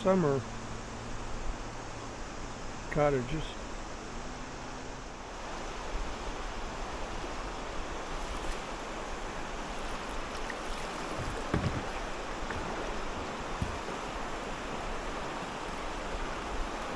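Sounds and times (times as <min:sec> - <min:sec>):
river water rushing: 0:00.0 - 0:16.9
soft low thump: 0:11.1 - 0:14.0.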